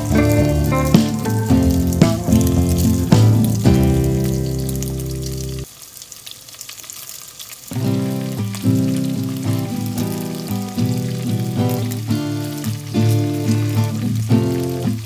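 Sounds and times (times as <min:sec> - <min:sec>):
background music: 0:00.0 - 0:05.5
meat sizzling in hot oil: 0:00.0 - 0:15.0.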